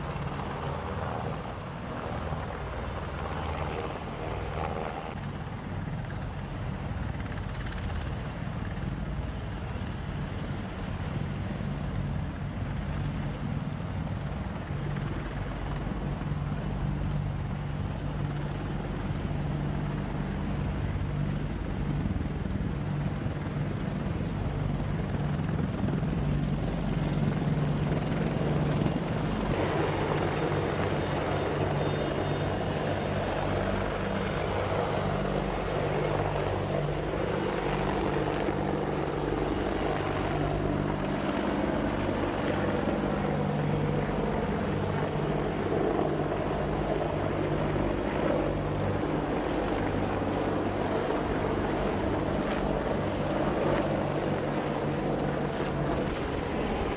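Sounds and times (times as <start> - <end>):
turbine engine whine: 16.5 - 56.9
helicopter rotor blade chop: 25.0 - 56.9.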